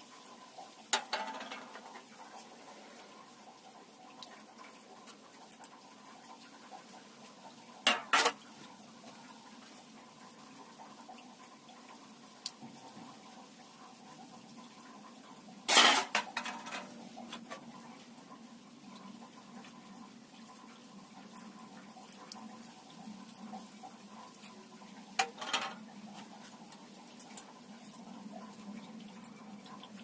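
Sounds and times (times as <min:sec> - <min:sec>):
metallic clatter of cans: 0:01.0 - 0:01.9, 0:07.8 - 0:08.4, 0:15.7 - 0:17.5, 0:25.2 - 0:25.8.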